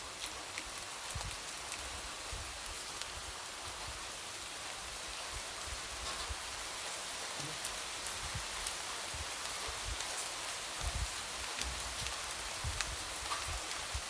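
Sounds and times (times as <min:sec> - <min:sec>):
light rain pattering on window: 0:00.0 - 0:14.0.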